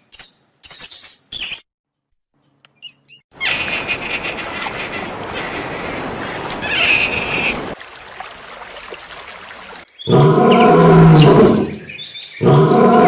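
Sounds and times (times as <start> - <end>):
bird chirps: 9.9 - 12.6.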